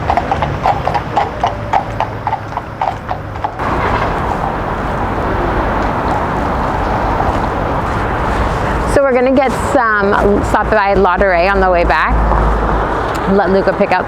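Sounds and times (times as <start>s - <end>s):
horse hooves clip-clopping: 0.0s - 14.0s
steady rushing noise: 3.6s - 14.0s.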